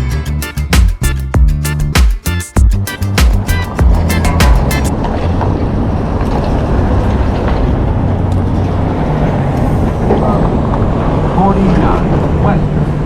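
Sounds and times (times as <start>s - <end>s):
vehicle engine rumble: 2.6s - 13.0s.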